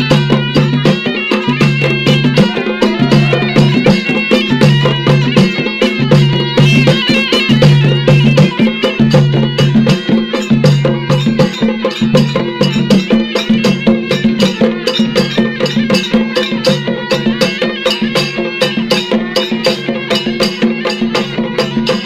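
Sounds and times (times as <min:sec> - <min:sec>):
fast drum strokes: 0:00.0 - 0:22.0.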